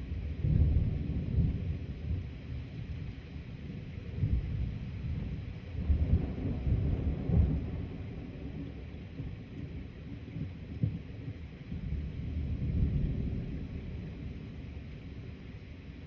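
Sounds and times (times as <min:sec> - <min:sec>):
thunder rumbling: 0:00.0 - 0:15.7.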